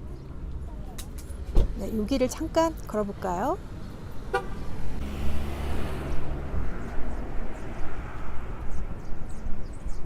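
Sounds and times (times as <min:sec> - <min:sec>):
passing car rumble: 0:02.6 - 0:10.0.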